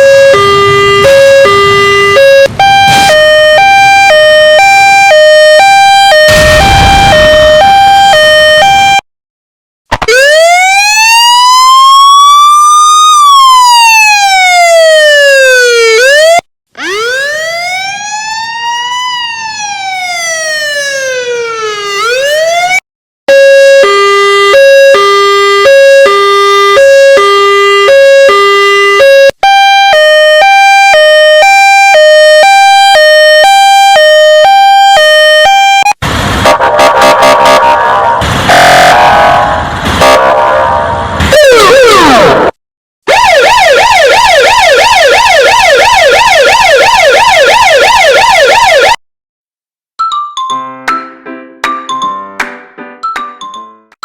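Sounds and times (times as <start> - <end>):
siren wailing: 0.0 - 9.0, 10.0 - 42.5, 43.1 - 49.0
two-tone hi-lo siren: 0.0 - 9.0, 10.0 - 42.5, 43.1 - 49.0
harsh noisy sound: 6.3 - 7.9, 36.0 - 42.6.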